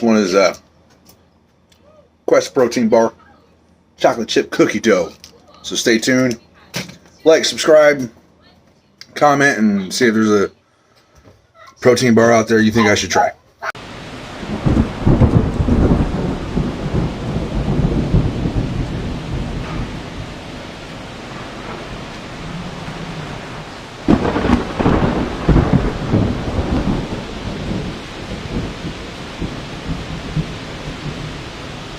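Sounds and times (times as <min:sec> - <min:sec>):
deep rumbling: 0:13.8 - 0:31.9
steady hiss: 0:13.8 - 0:31.9.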